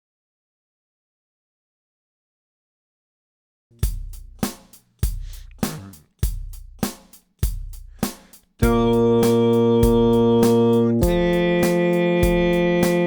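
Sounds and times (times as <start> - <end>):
drum machine beat: 3.8 - 13.0
low bass notes: 5.2 - 6.0, 8.6 - 13.0
sustained keyboard chord: 8.6 - 13.0.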